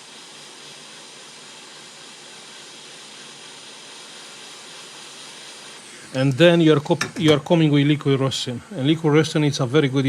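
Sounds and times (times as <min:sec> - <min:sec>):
hot air blower hissing: 0:00.0 - 0:10.0.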